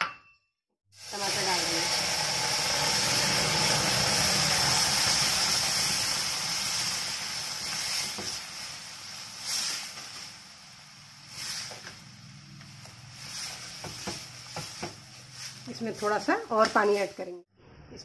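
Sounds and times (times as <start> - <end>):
puree sizzling in hot oil: 0.9 - 17.3.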